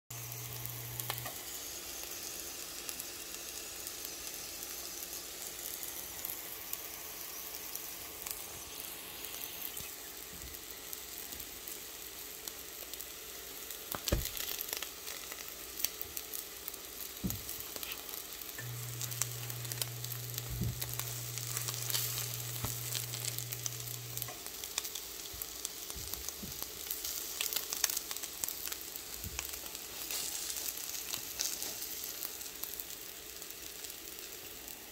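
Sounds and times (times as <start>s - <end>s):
eggs sizzling in a frying pan: 0.1s - 34.9s.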